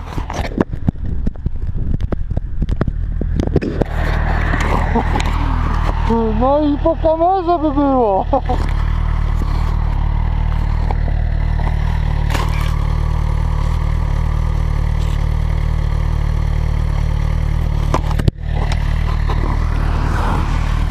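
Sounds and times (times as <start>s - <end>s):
knocks and scrapes from camera: 0.0s - 1.3s, 1.9s - 6.0s, 8.5s - 12.8s, 17.7s - 20.9s
motorcycle engine idling: 0.0s - 20.1s.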